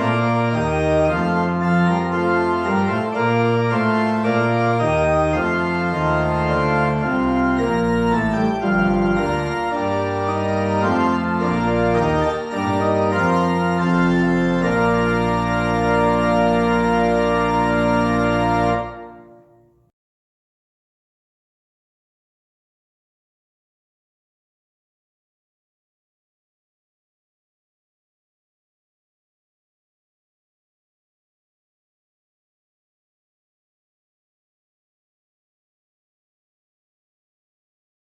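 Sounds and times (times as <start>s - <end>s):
organ playing sustained chords: 0.0s - 19.6s.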